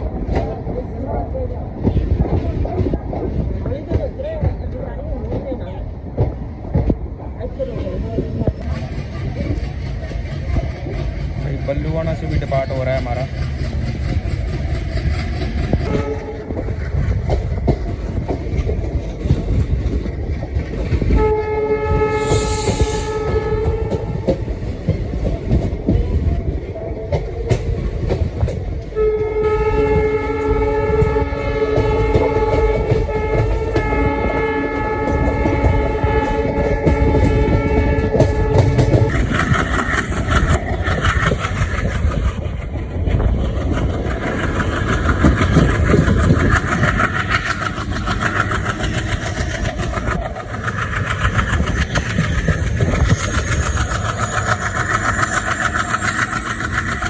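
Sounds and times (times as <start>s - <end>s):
diesel locomotive engine: 0.0s - 57.0s
train rumbling: 0.0s - 57.0s
locomotive air horn blast: 15.9s - 16.5s, 21.1s - 24.2s, 28.9s - 39.1s.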